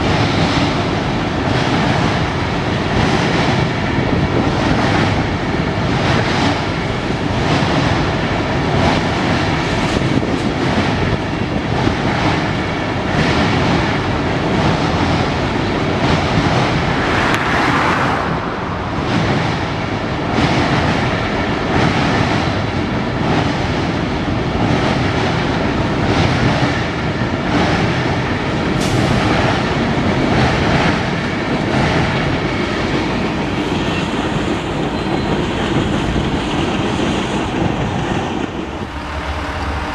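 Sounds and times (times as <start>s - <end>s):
train hiss: 28.8s - 29.8s.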